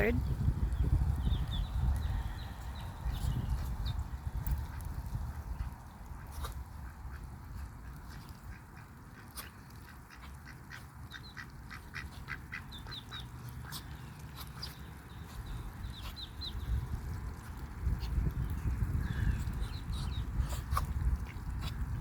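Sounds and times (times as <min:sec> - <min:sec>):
steady low rumble: 0:00.0 - 0:09.2
ducks quacking: 0:04.6 - 0:16.3.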